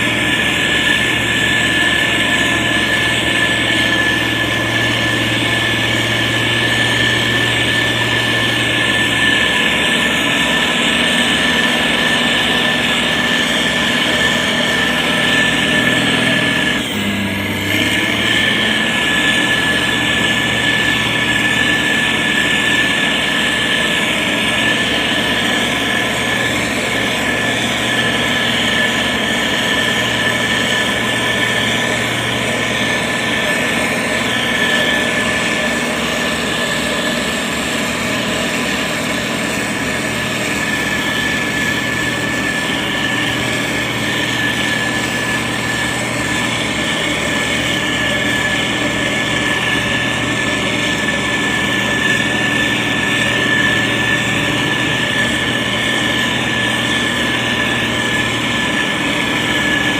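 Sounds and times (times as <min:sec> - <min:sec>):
diesel engine hum: 0:00.0 - 0:59.9
high machinery whine: 0:00.0 - 0:59.9.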